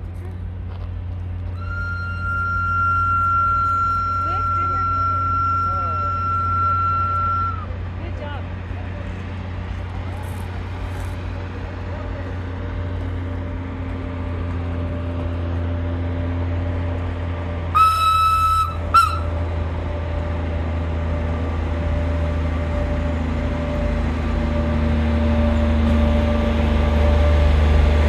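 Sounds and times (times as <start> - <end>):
train engine hum: 0.0 - 28.0
train horn: 1.6 - 7.7, 17.7 - 19.4.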